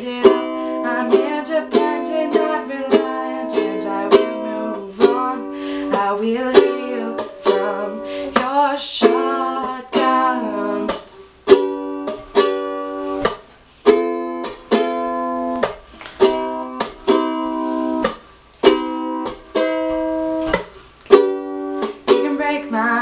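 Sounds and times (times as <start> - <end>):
person singing: 0.0 - 11.1, 22.1 - 23.0
ukulele strumming chords: 0.0 - 23.0.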